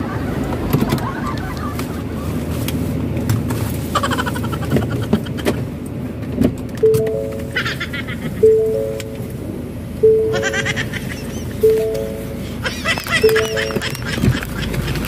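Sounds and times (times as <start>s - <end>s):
car idling heard from cabin: 6.8s - 15.0s
rapid chirp: 13.2s - 14.1s.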